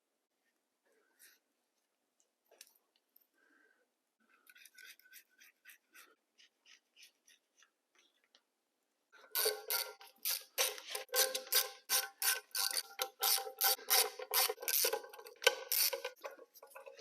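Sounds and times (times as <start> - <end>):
metallic clicks of hand tools: 9.3 - 17.0
ratchet wrench clicking rapidly: 9.4 - 16.2.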